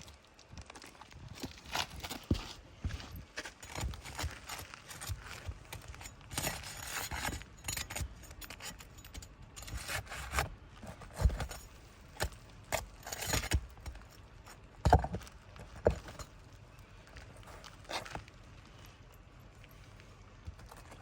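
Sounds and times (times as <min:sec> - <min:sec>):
metal bar scraping shingle: 0:03.4 - 0:13.9.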